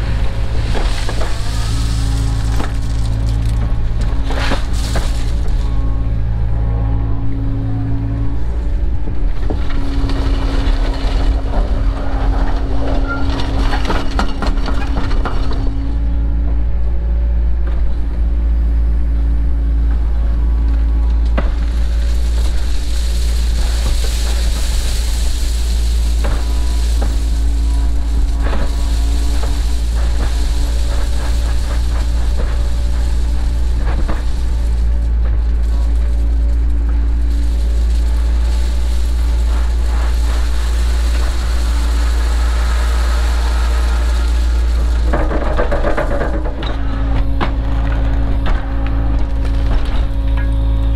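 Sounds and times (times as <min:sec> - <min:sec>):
knocks and scrapes: 0:00.0 - 0:05.9, 0:21.2 - 0:50.6
excavator diesel engine running: 0:00.0 - 0:50.9.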